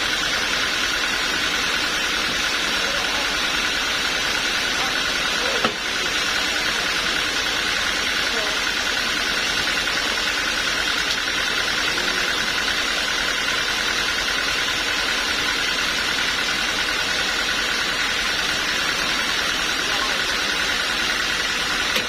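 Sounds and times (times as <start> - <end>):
pulsing high whine: 0.0 - 22.0
sawmill engine running: 0.0 - 22.0.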